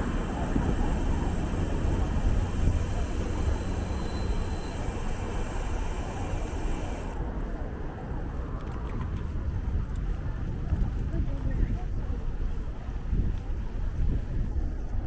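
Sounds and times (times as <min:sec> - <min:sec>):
street traffic: 0:00.0 - 0:08.3
wind rumble on microphone: 0:00.0 - 0:15.0.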